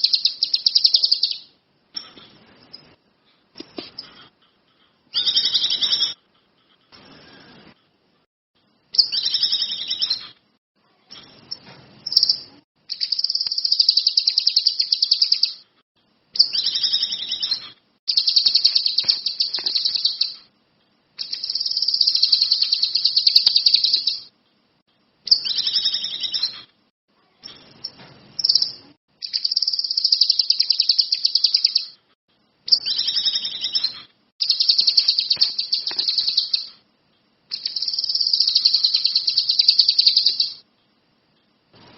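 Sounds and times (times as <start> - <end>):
songbird trilling: 0.0 - 2.1, 27.8 - 31.9, 32.7 - 36.7, 37.5 - 40.6.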